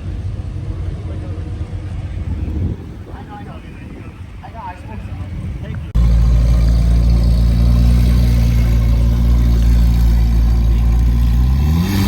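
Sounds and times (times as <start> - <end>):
car engine idling: 5.9 - 12.0.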